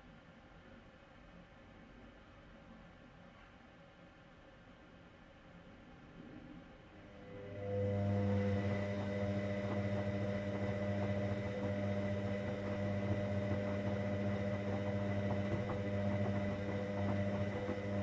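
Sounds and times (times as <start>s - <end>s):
drain pump humming: 7.0s - 18.0s.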